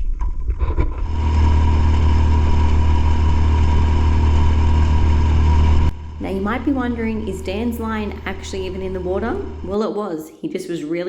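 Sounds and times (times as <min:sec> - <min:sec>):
outboard motor droning: 0:01.0 - 0:09.8.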